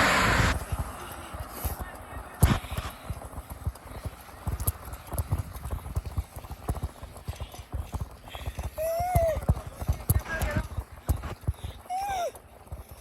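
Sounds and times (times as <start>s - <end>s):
bicycle rattling and knocking: 0.5s - 13.0s.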